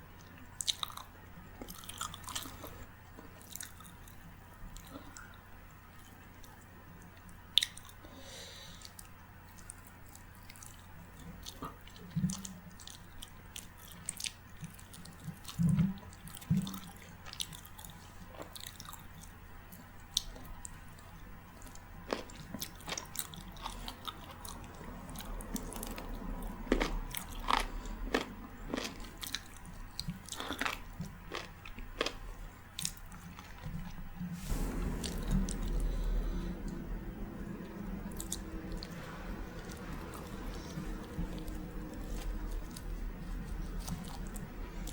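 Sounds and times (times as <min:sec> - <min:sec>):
person chewing with wet mouth sounds: 0:00.2 - 0:08.1, 0:08.7 - 0:19.3, 0:21.6 - 0:34.0, 0:35.5 - 0:44.9
low thuds: 0:34.4 - 0:44.9.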